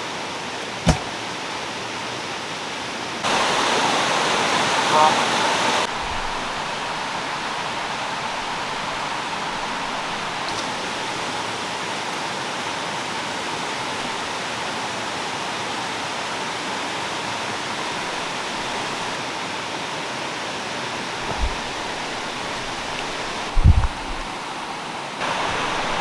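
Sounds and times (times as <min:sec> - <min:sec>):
stream water rushing: 0:00.0 - 0:26.0
soft low thump: 0:00.8 - 0:01.1, 0:21.3 - 0:24.3.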